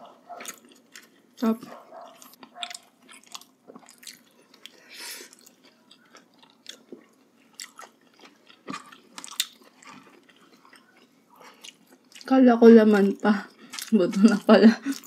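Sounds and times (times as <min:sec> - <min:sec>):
chewing and biting meat: 0:00.3 - 0:01.2, 0:01.9 - 0:12.3, 0:13.6 - 0:14.0.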